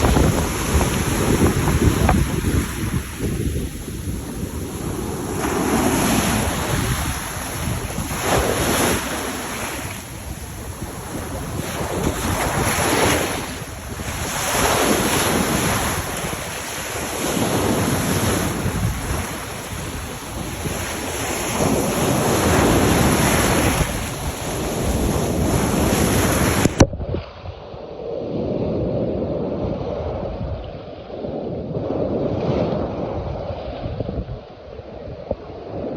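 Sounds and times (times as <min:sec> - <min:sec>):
water washing against shore: 0:00.0 - 0:26.9
wind buffeting microphone: 0:00.0 - 0:35.9.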